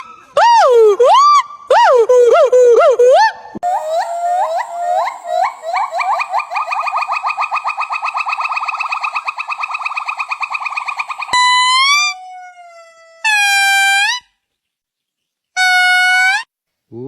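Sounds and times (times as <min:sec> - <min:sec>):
long whistled animal calls: 0:00.0 - 0:12.5
fast trill of rising chirps: 0:03.7 - 0:12.0.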